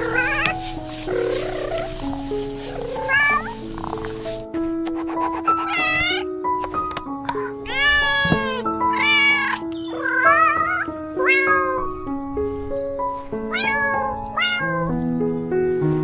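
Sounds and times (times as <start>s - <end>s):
cat meowing: 0.0s - 2.0s, 2.8s - 3.6s, 5.4s - 6.3s, 7.4s - 12.1s, 13.4s - 14.9s
background music of held notes: 0.0s - 16.0s.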